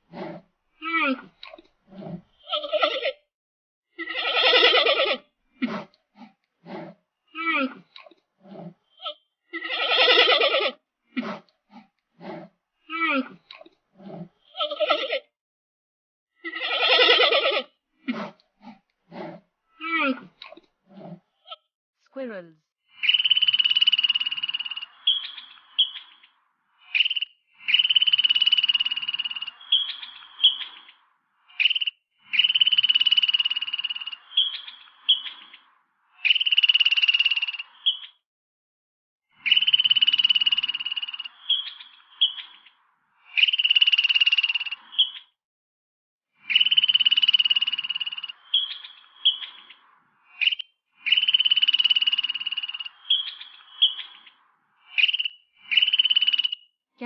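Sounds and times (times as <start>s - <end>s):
squirrel chirps: 22.9s - 35.6s, 36.2s - 38.2s, 39.4s - 45.3s, 46.4s - 56.7s.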